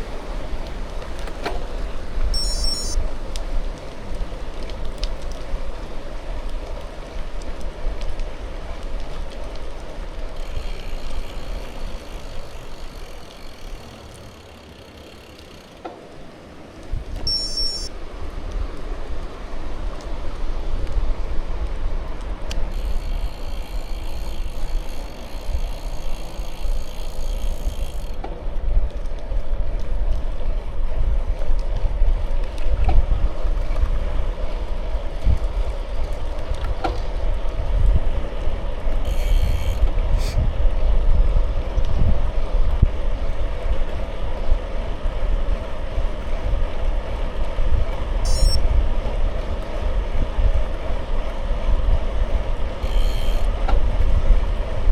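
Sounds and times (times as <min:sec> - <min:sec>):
bike tyres rolling: 0:00.0 - 0:54.9
wind buffeting microphone: 0:16.0 - 0:54.9.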